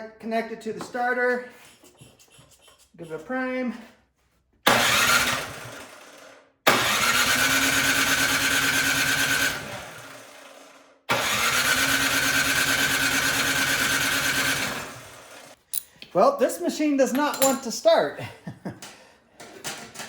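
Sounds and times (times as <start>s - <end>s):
electric starter cranking engine: 4.7s - 15.6s.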